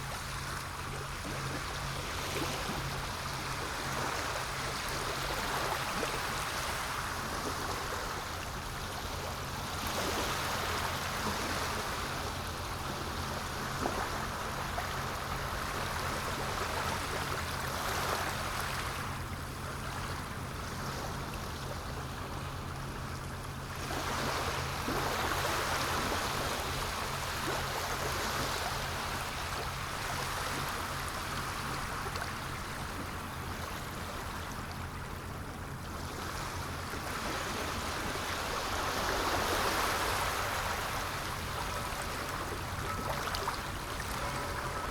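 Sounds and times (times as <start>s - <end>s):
sea waves washing in: 0.0s - 44.9s.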